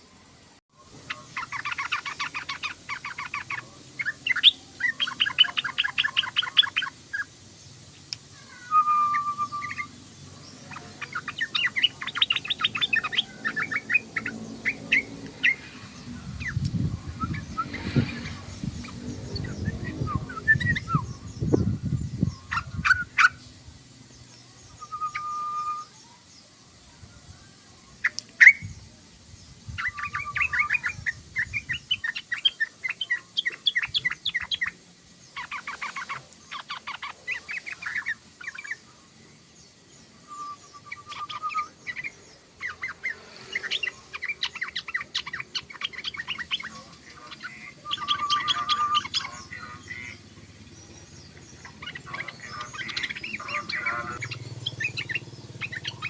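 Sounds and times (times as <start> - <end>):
bulbul chattering: 0.8 - 26.4, 27.9 - 56.0
low rumbling: 12.6 - 23.9.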